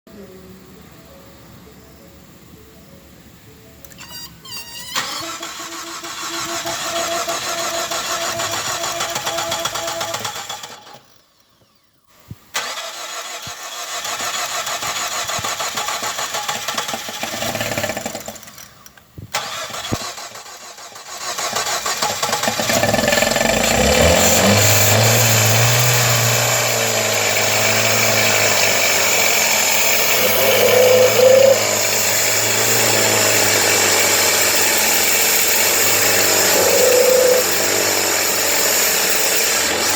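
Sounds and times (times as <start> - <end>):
car engine starting and running: 5.0 - 11.2, 12.5 - 39.9
mechanical noise: 28.3 - 38.2.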